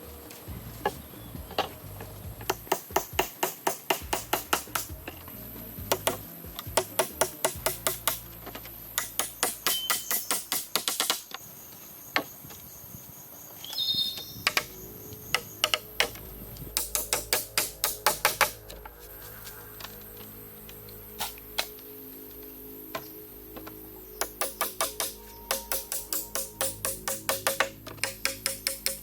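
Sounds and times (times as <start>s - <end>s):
rapid sharp tapping knocks: 2.4s - 5.1s, 24.2s - 29.0s.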